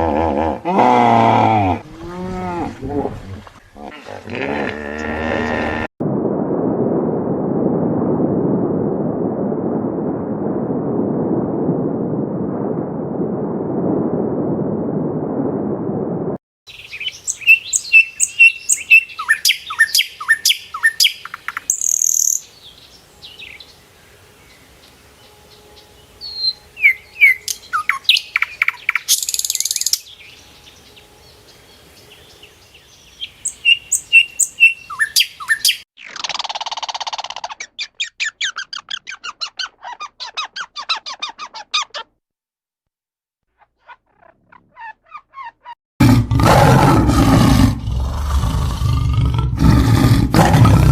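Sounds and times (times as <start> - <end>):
birds chirping: 16.7 - 36.3.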